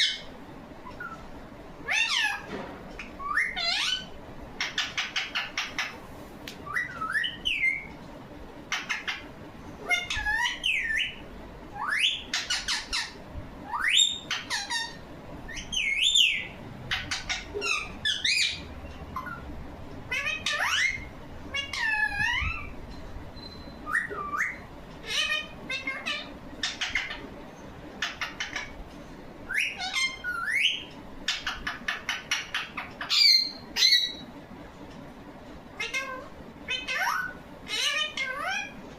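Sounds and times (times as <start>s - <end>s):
parrot whistling and chattering: 1.9s - 6.0s, 6.6s - 7.9s, 8.7s - 11.2s, 11.8s - 19.5s, 20.1s - 22.8s, 23.4s - 27.2s, 28.0s - 28.8s, 29.5s - 34.2s, 35.8s - 38.8s.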